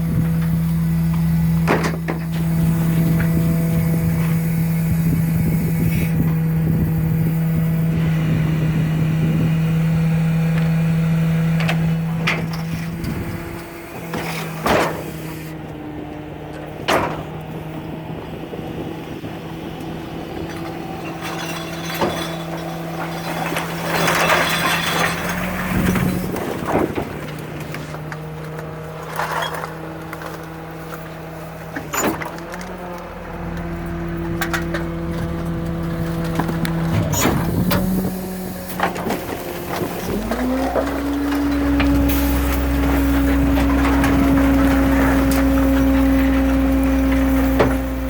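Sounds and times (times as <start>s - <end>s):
diesel truck engine running: 0.0s - 48.0s
clattering crash: 20.5s - 28.0s, 38.7s - 48.0s.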